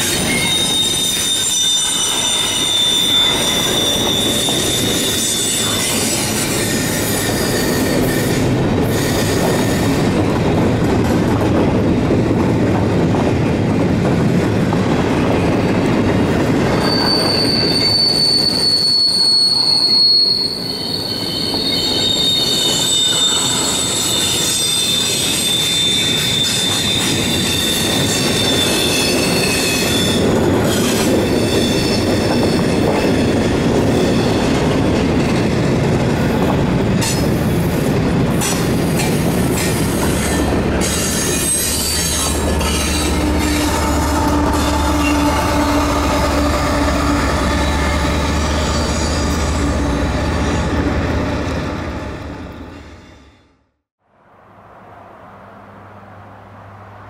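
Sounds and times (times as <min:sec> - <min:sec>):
wheel flange squeal: 0:00.0 - 0:09.9, 0:16.7 - 0:30.2
train wheels rumbling on rail: 0:00.0 - 0:53.6.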